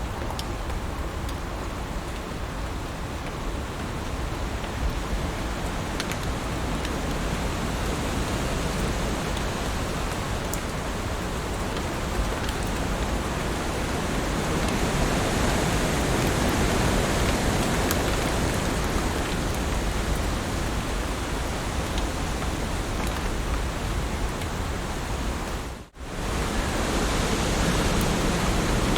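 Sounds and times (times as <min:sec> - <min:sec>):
raindrop ticks: 0:00.0 - 0:01.4, 0:02.0 - 0:07.4, 0:08.7 - 0:24.6
heavy rain hissing: 0:04.2 - 0:28.9.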